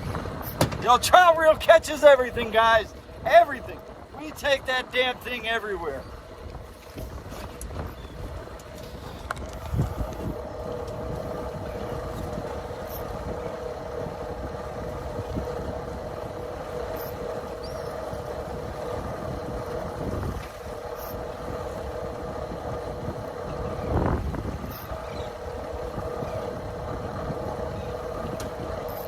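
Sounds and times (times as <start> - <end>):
outboard motor running: 0.0 - 29.0
dull thump: 0.1 - 0.9.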